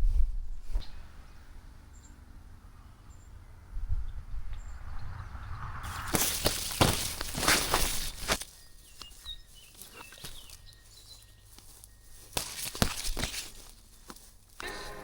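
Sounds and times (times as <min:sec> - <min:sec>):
footsteps on woodland trail: 0:05.8 - 0:15.0
rustling: 0:05.8 - 0:15.0
faint bird chirps: 0:08.4 - 0:12.4.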